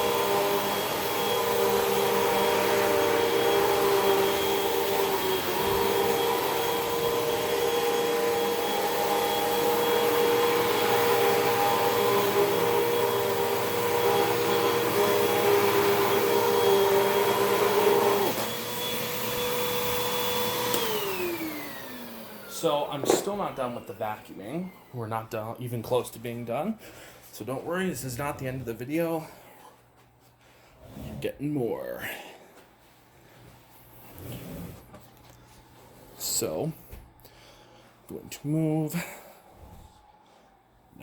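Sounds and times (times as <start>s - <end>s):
vacuum cleaner motor whine: 0.0s - 25.1s.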